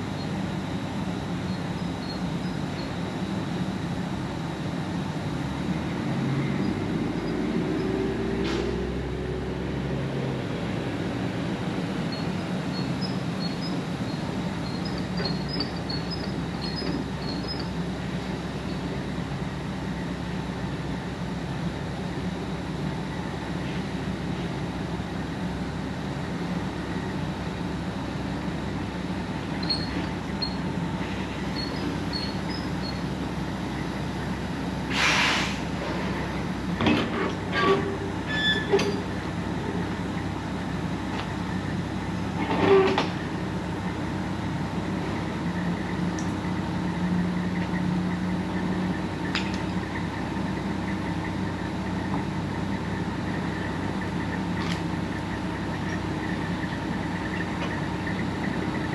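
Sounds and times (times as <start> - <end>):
truck engine running: 0.0 - 58.9
short air hiss: 34.9 - 35.8.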